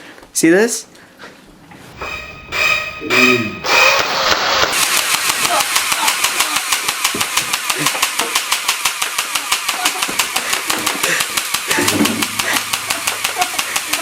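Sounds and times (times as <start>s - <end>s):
airsoft gun full-auto burst: 3.6s - 14.0s.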